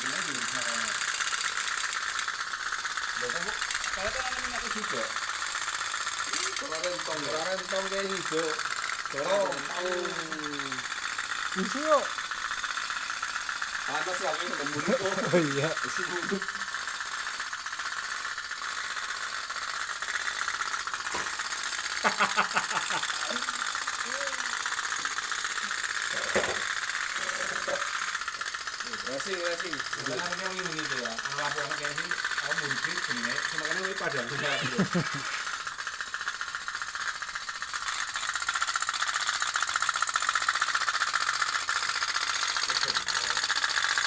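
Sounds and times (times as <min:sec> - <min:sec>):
toy boat engine ticking putter: 0:00.0 - 0:44.0
person speaking: 0:06.3 - 0:10.9, 0:13.9 - 0:16.6.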